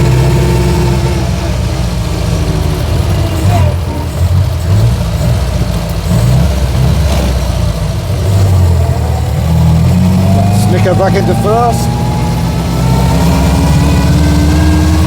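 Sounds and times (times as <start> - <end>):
car engine running at low speed: 0.0 - 15.0.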